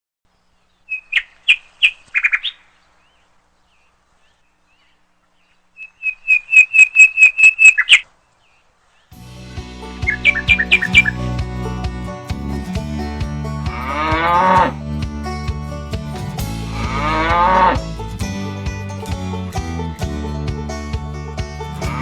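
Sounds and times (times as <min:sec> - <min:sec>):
music with strong bass: 0:09.2 - 0:22.0.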